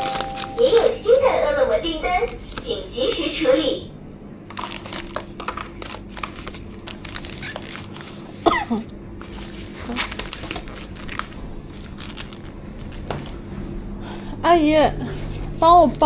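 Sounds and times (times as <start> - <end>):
plastic wrap crinkling: 0.0 - 1.5, 2.2 - 13.4.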